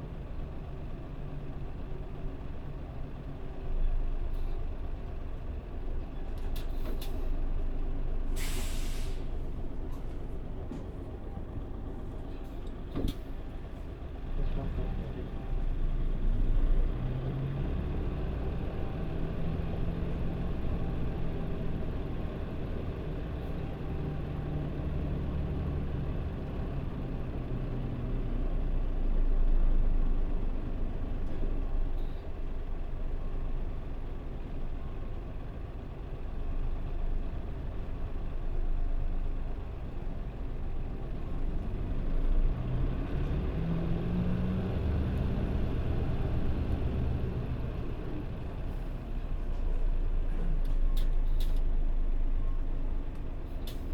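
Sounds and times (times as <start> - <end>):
bus engine humming: 0.0 - 53.9
road noise: 29.8 - 53.9.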